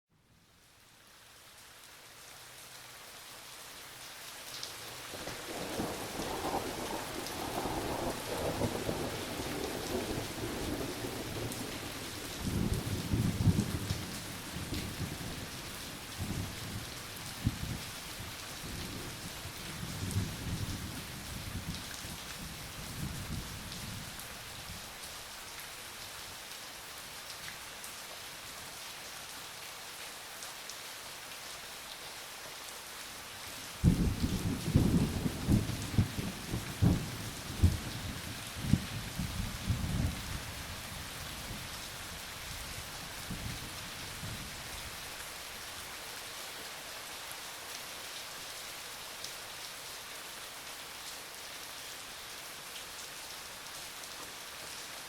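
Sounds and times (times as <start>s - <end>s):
steady rain: 0.2s - 55.0s
rolling thunder: 33.8s - 37.9s.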